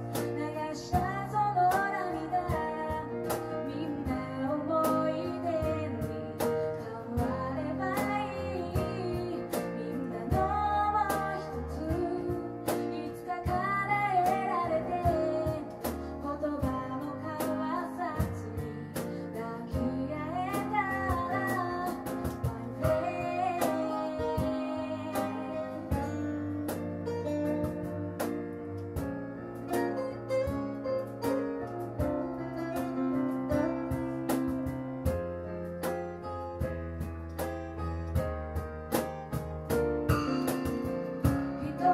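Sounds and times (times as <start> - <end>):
woman singing: 0.0 - 26.7, 41.2 - 41.9
strummed acoustic guitar: 37.4 - 41.9.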